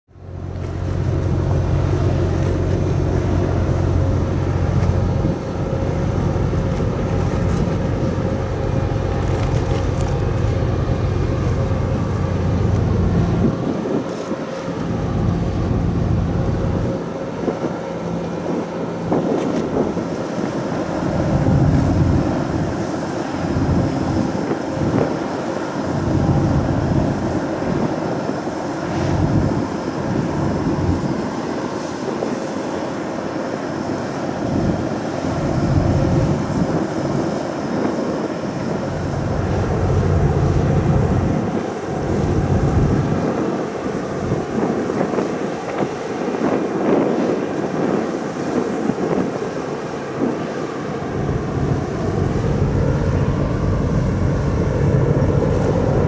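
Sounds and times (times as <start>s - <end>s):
sea: 0.1s - 56.0s
wind buffeting microphone: 0.2s - 56.0s.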